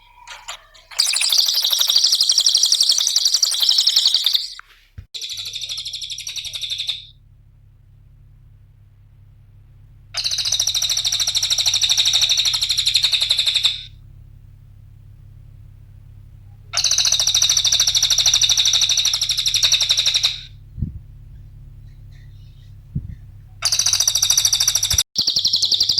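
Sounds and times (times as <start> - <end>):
bird twittering: 0.0 - 7.1, 10.2 - 13.9, 16.8 - 20.5, 21.3 - 25.9
faint low hum: 0.0 - 25.9.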